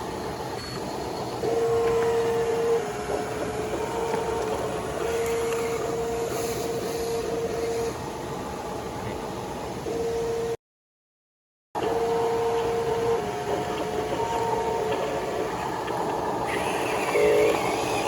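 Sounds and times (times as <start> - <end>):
small electric motors whining: 0.6 - 7.9, 16.4 - 18.0
hiss: 6.3 - 7.1.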